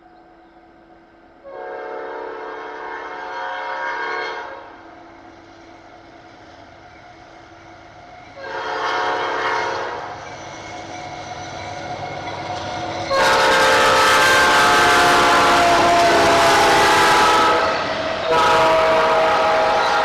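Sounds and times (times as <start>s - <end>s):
locomotive air horn blasts: 1.4s - 4.7s, 8.4s - 10.1s, 13.1s - 20.0s.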